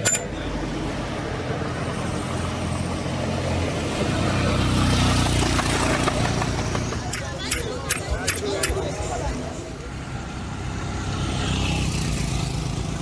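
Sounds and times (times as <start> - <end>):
vehicle engine running: 0.4 - 8.3.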